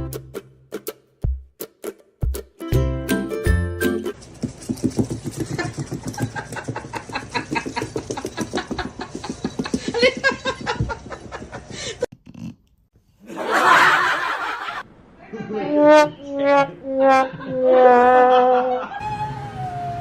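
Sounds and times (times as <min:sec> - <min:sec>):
person laughing hard: 0:06.2 - 0:12.0, 0:18.3 - 0:19.0.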